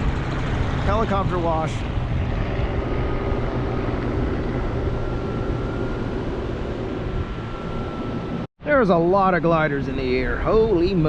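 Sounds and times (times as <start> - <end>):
helicopter engine and rotor: 0.0 - 8.5
wind rushing over microphone: 0.0 - 8.5
faint steady whine: 1.5 - 11.0.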